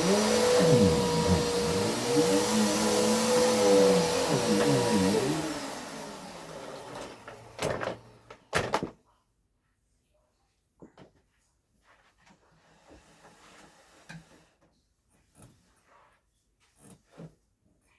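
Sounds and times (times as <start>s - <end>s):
vacuum cleaner running: 0.0s - 8.4s.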